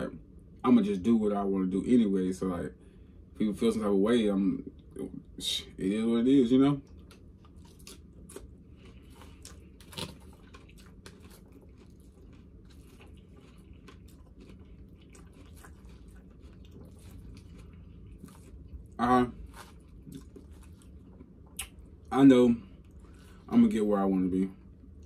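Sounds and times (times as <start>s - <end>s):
chewing and crunching salad: 6.2s - 25.0s.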